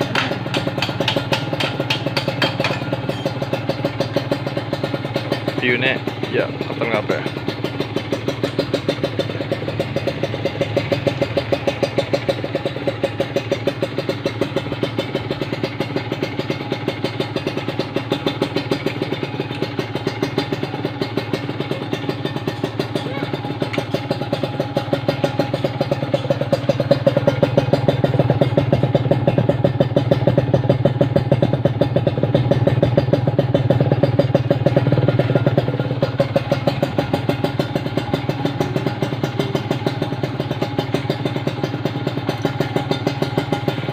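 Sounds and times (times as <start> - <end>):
two-stroke engine running: 0.0 - 43.9.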